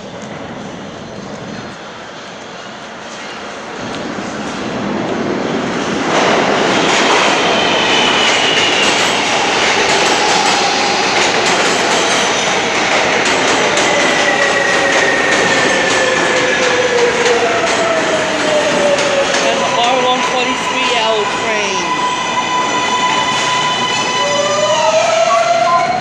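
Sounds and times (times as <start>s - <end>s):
train rumble: 0.0s - 26.0s
train braking whine: 6.5s - 26.0s.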